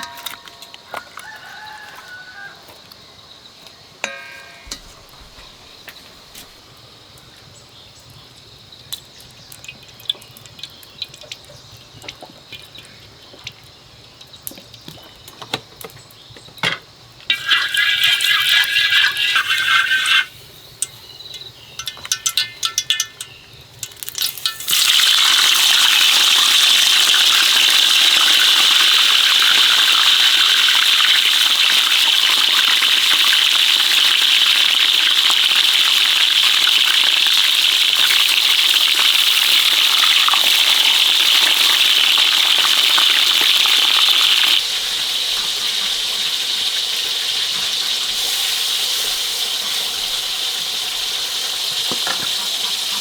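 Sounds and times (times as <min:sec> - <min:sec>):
light clinking and rattling: 0:20.8 - 0:24.7
loud steady rushing hiss: 0:43.1 - 0:53.0.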